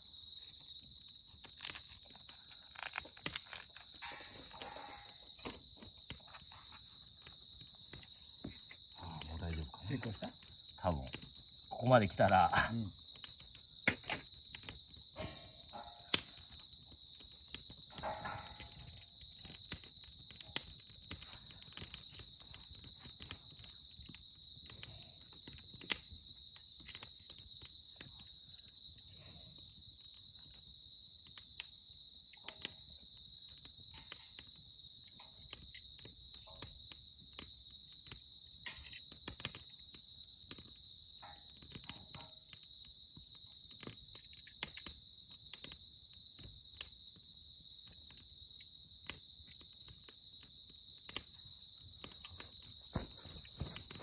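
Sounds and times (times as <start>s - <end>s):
insect trilling: 0.0s - 30.6s
campfire crackling and popping: 0.0s - 54.0s.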